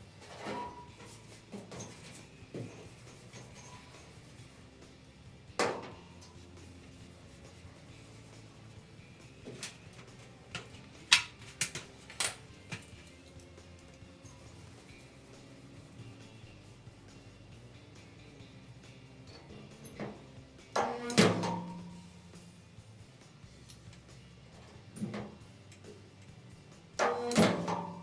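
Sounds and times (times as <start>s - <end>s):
tools and sheet metal clicking: 8.3s - 15.1s, 19.2s - 22.1s, 23.6s - 26.4s, 27.0s - 28.0s.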